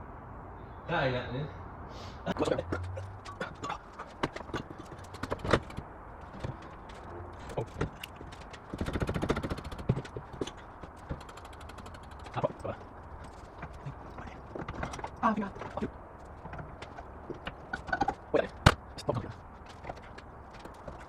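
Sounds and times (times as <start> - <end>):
hand tools knocking and clanking: 2.4 - 21.0
rapid clicks: 2.7 - 15.2.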